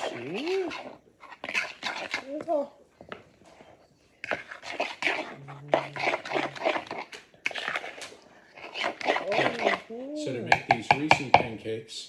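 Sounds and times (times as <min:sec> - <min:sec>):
utensil scraping bowl: 0:00.0 - 0:11.8.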